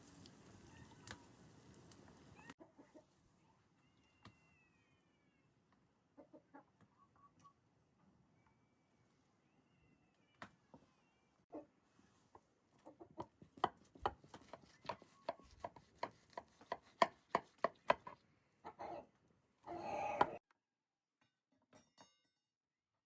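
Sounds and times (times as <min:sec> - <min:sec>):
knife chopping on cutting board: 0:13.5 - 0:18.2.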